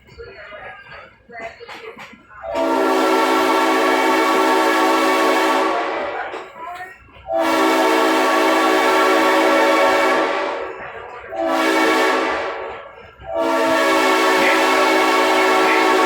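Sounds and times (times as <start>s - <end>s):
train horn blasts: 2.5s - 6.4s, 7.2s - 16.0s.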